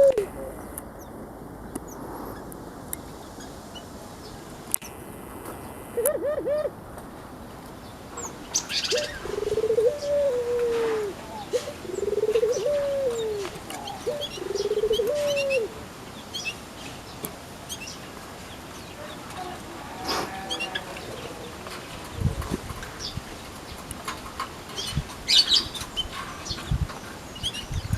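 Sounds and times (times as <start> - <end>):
dove cooing: 0.0 - 0.8, 5.8 - 6.8, 8.7 - 15.9, 18.9 - 22.7
small birds chirping: 0.0 - 6.2, 7.6 - 27.9.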